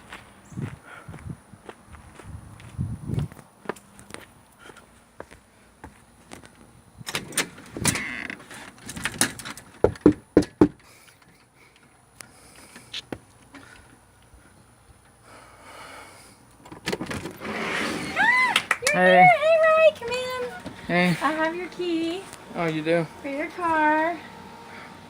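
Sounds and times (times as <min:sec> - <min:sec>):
knocking on a door: 0:09.8 - 0:10.8.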